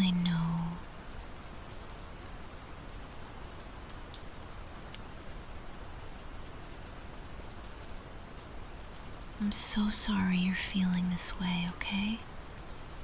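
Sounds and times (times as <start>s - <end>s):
faint drip ticks: 0.0s - 5.1s, 10.9s - 13.0s
soft rain hiss: 0.0s - 13.0s.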